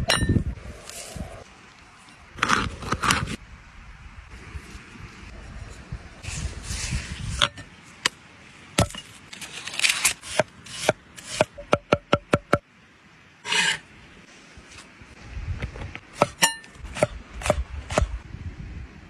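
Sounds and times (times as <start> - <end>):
rubbing and scraping on wood: 13.4 - 13.9.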